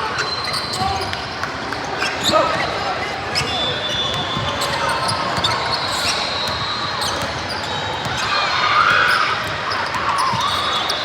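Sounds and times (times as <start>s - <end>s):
crowd chatter: 0.0s - 11.0s
shoe squeaks: 0.1s - 1.0s, 1.9s - 8.3s, 9.1s - 11.0s
basketball bouncing on court: 4.1s - 8.3s.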